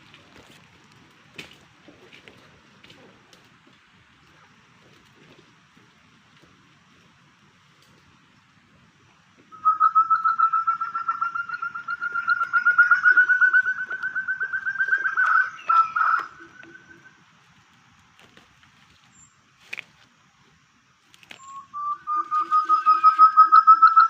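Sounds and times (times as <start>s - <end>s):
quail whistled call: 9.5s - 17.2s, 21.4s - 24.0s.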